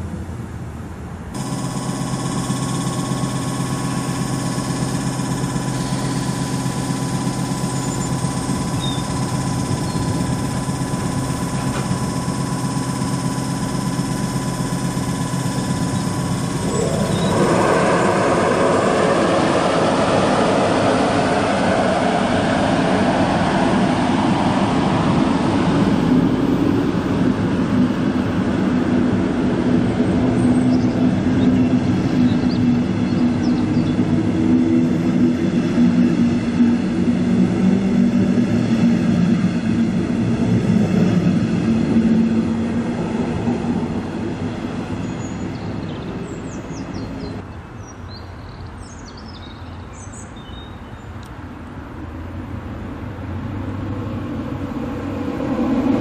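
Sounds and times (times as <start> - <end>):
locomotive hum: 1.4 - 30.3.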